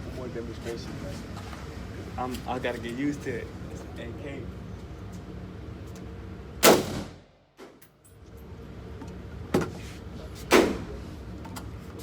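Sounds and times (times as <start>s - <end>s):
faint gunshot crack: 6.6s - 7.2s
loud gunshots with echo: 6.6s - 7.2s.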